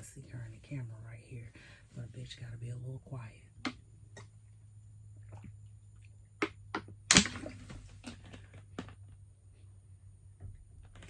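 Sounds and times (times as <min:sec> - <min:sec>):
low steady hum: 0:00.0 - 0:11.0
sharp clicks and knocks: 0:06.4 - 0:08.2
loud thunk: 0:07.1 - 0:07.8.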